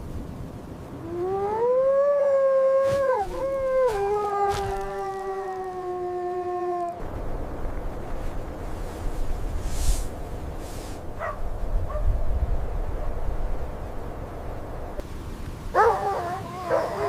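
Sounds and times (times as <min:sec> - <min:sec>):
dog howling: 0:01.1 - 0:07.0, 0:15.8 - 0:17.0.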